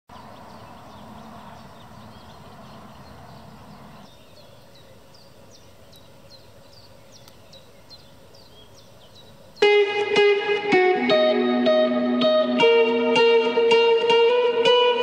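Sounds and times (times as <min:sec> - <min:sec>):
small birds chirping: 0:00.1 - 0:11.2.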